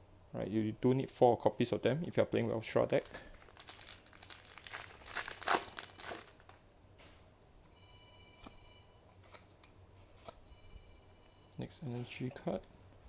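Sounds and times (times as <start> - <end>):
foil wrapper crinkling and tearing: 2.8 - 6.5.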